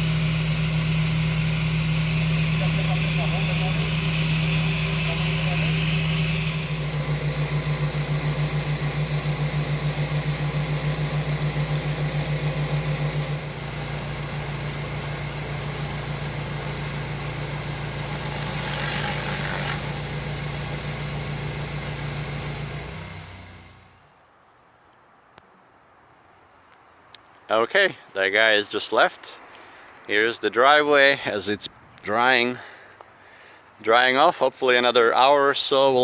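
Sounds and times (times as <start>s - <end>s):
broad hiss: 0.0s - 23.9s
pressure washer engine running: 0.0s - 24.0s.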